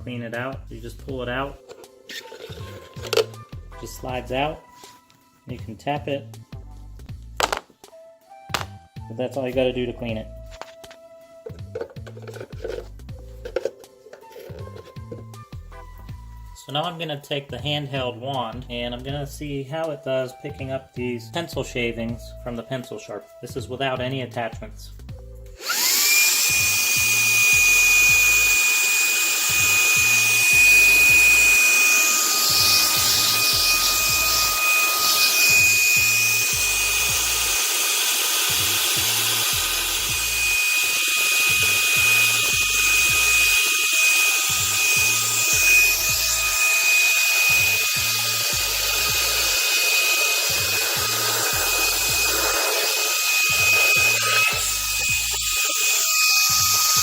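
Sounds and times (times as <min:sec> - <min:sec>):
handheld vacuum motor whining: 0:01.6 - 0:03.5, 0:10.5 - 0:15.6, 0:25.6 - 0:57.0.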